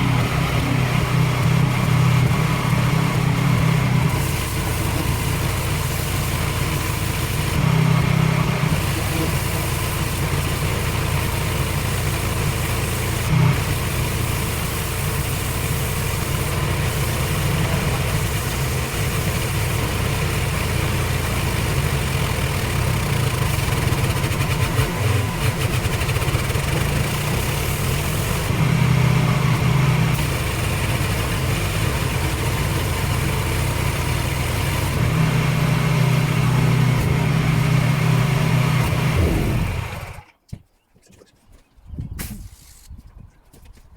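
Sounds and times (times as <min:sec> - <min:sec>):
pressure washer motor hum: 0:00.0 - 0:40.2
water jet hissing: 0:08.6 - 0:28.7.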